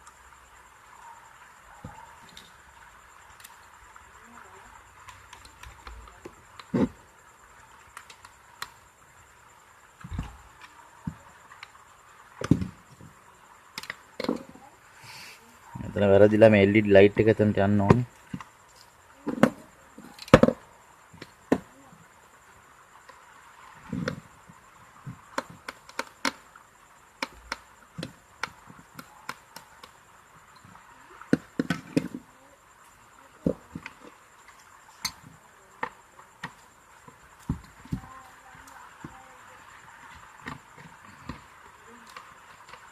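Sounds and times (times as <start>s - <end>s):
dull thump: 10.0s - 10.4s.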